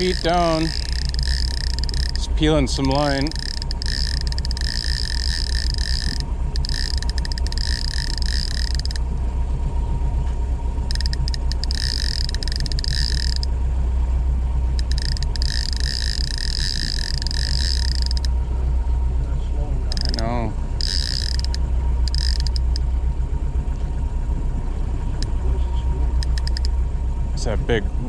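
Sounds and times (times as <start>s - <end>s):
fishing reel drag buzzing: 0.0s - 9.2s, 10.8s - 13.6s, 14.7s - 18.4s, 19.9s - 22.9s, 26.1s - 26.8s
boat engine low rumble: 0.0s - 28.0s.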